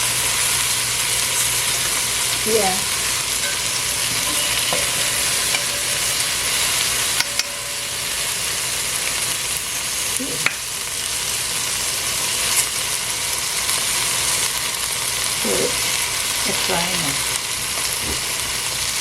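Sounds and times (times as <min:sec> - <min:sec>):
okra sizzling in oil: 0:00.0 - 0:19.0.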